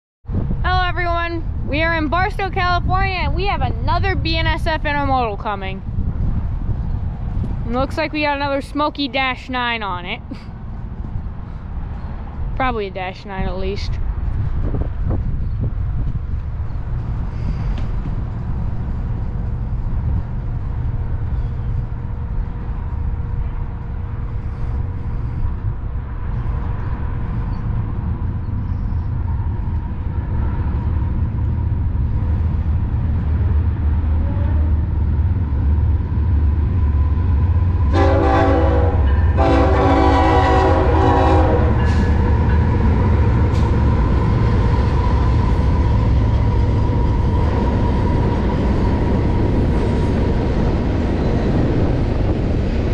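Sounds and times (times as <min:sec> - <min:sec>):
locomotive engine rumble: 0:00.3 - 0:52.9
locomotive horn blasts: 0:34.2 - 0:34.7, 0:37.9 - 0:42.0.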